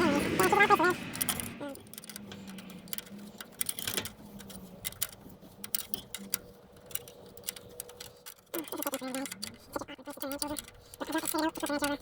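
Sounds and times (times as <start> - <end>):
hand tools clicking and tapping: 0.0 - 12.0.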